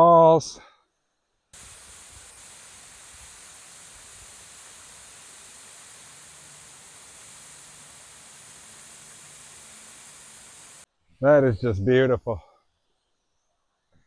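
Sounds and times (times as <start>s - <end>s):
faint waterfall rush: 1.6s - 10.9s.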